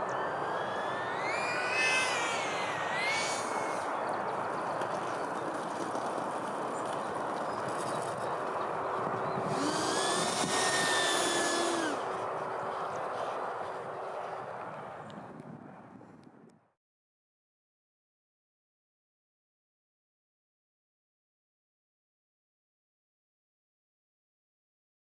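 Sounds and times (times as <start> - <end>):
model jet fan whining: 0.0 - 15.4
wind noise on microphone: 0.0 - 16.6.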